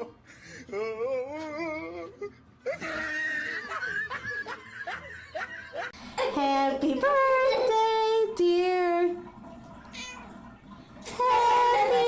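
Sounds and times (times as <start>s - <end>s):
people laughing: 2.6s - 6.0s.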